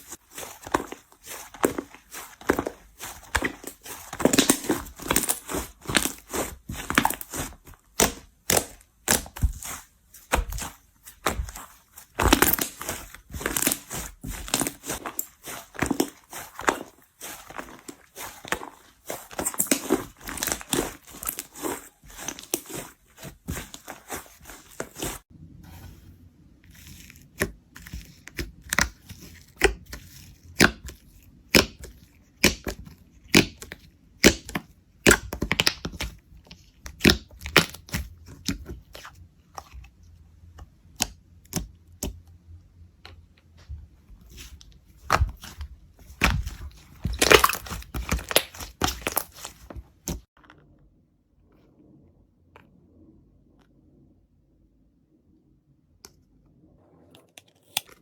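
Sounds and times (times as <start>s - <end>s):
slime crackling: 0.0s - 25.2s, 45.1s - 50.2s.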